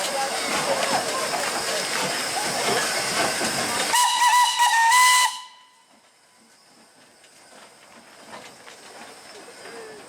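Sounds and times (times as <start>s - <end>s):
steam hissing: 0.0s - 5.6s
steam locomotive whistle: 3.9s - 6.0s.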